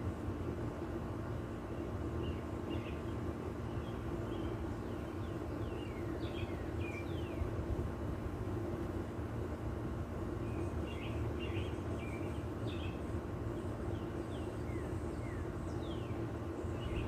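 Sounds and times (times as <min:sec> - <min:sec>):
steady low hum: 0:00.0 - 0:17.0
birds whistling and chirping: 0:02.2 - 0:07.6, 0:10.4 - 0:17.0.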